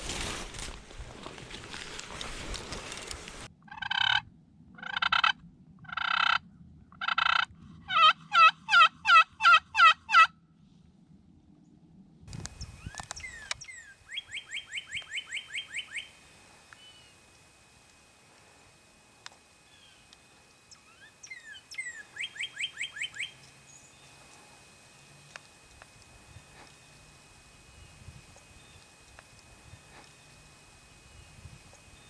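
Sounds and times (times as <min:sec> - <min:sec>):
rustling and clicks: 0:00.0 - 0:03.5, 0:12.3 - 0:13.7
turkey calls: 0:07.0 - 0:10.3, 0:12.3 - 0:32.0.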